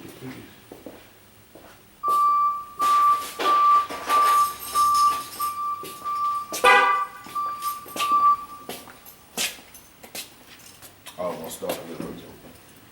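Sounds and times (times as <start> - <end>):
short sharp multi-tone sound: 2.0 - 8.7
high warning chime beeping: 2.0 - 9.2.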